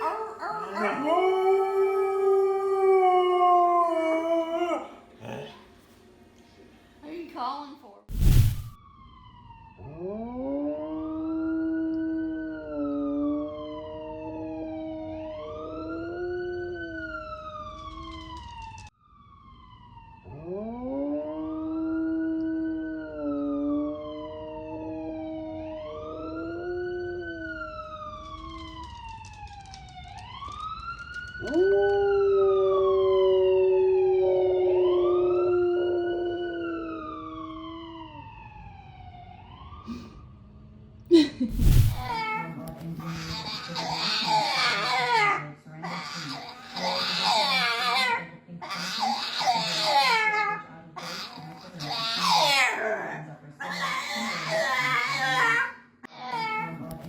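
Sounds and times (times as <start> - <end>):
wailing siren: 0.0 - 5.2, 8.2 - 56.7
dog howling: 0.0 - 5.6, 41.9 - 56.7.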